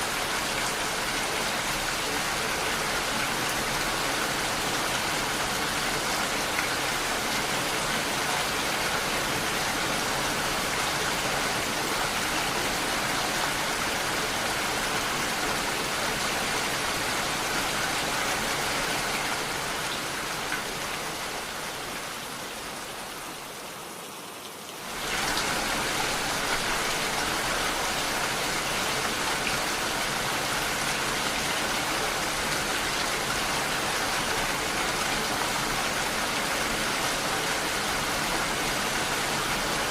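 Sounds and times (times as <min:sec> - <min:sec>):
dense rainfall hiss: 0:00.0 - 0:39.9.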